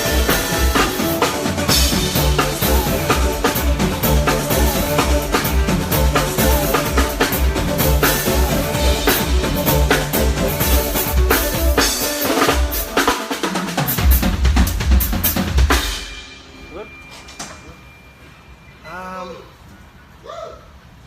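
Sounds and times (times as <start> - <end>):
pulsing bass line: 0.0 - 12.0
drum kit beat: 0.0 - 16.6
held chords: 0.0 - 16.8.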